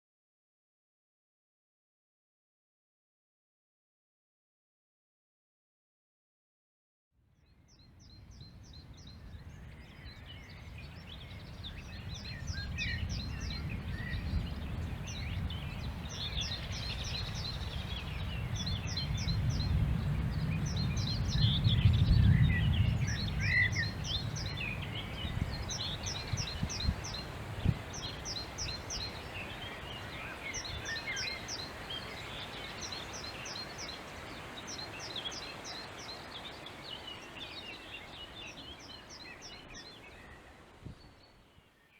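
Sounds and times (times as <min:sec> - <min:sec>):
birds chirping: 0:07.7 - 0:41.9.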